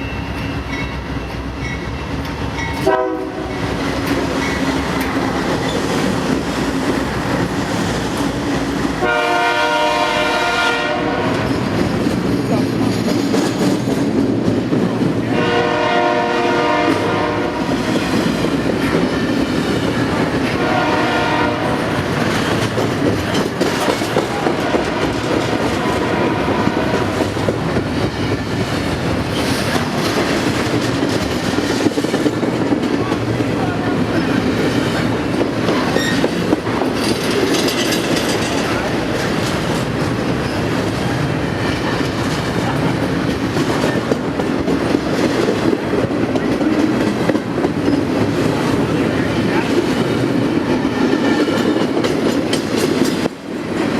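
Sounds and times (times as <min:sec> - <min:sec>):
train wheels clattering: 0:00.0 - 0:53.9
locomotive air horn chord: 0:02.8 - 0:03.6, 0:09.0 - 0:11.4, 0:15.3 - 0:17.7, 0:20.6 - 0:21.8.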